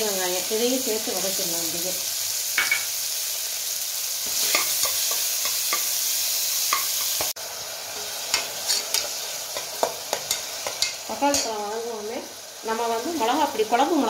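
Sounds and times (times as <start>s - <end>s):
onions sizzling in hot oil: 0.0s - 14.0s
spatula scraping and tapping pot: 8.3s - 11.5s.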